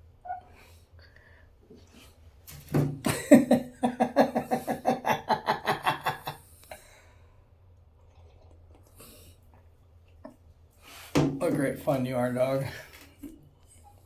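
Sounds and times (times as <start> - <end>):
man laughing hard: 3.1 - 6.4.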